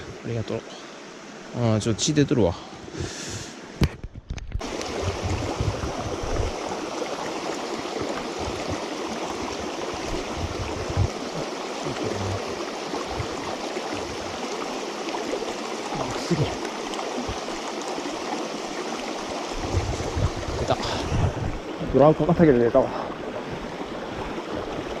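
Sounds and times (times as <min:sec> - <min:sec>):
stream rushing over rocks: 0:04.6 - 0:25.0
thumps on the microphone: 0:09.5 - 0:11.2.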